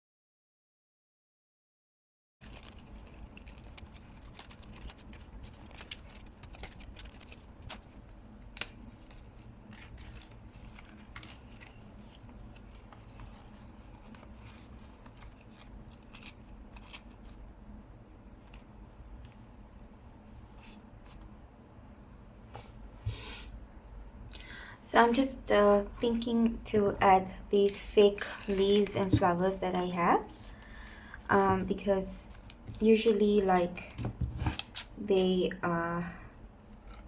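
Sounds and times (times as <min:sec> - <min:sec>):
paper being handled: 0:02.4 - 0:17.5, 0:27.8 - 0:34.9
scissors snipping paper: 0:02.5 - 0:17.4, 0:36.7 - 0:37.0.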